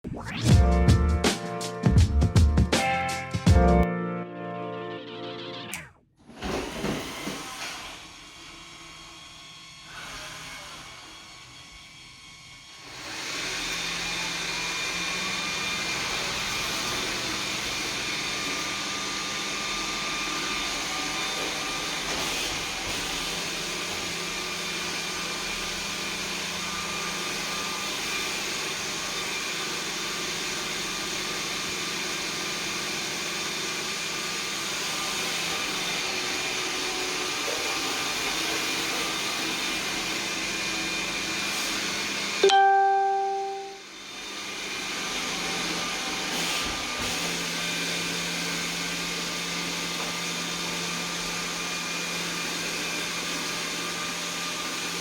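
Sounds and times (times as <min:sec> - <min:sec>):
robot vacuum whirring hum: 0:06.4 - 0:11.5.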